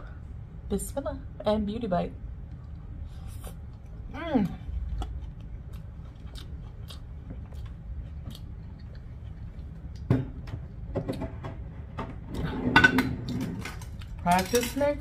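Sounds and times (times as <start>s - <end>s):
person chewing: 2.6s - 10.1s.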